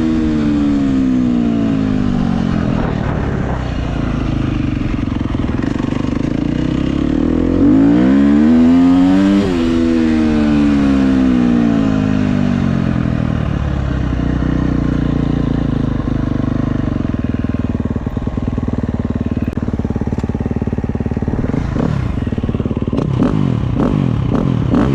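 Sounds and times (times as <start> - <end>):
dirt bike engine revving: 0.0 - 12.6, 19.4 - 24.9.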